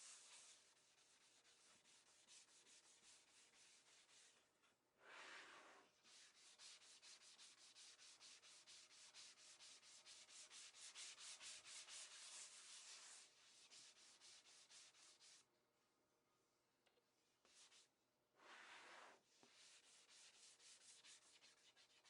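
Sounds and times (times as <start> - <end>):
wood being hand-sanded: 6.1 - 15.4, 19.5 - 22.0.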